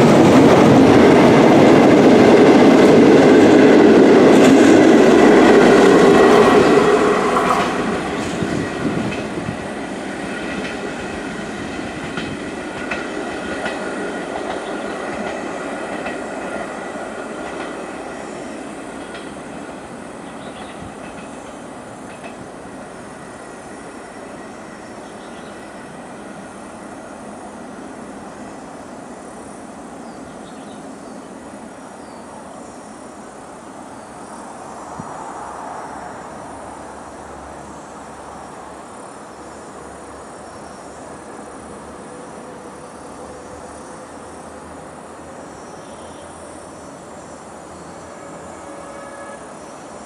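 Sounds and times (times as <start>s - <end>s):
insects chirping: 0.0s - 50.0s
train rumbling on track: 0.0s - 50.0s.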